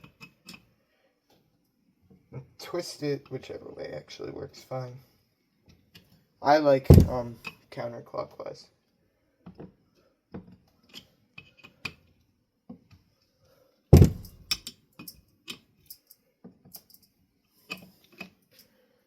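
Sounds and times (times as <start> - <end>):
loud metal clank: 14.0 - 14.4.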